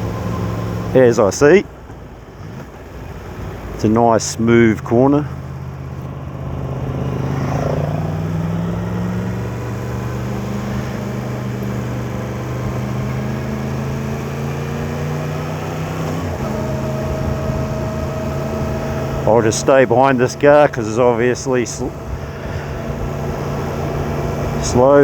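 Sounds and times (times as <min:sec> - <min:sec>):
motorcycle engine running: 0:01.7 - 0:25.0.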